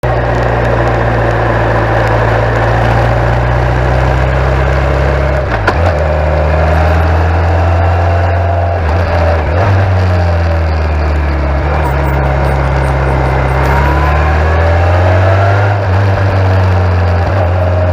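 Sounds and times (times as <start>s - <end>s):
motorcycle engine running: 0.0s - 17.9s
loud rushing noise: 8.7s - 16.3s.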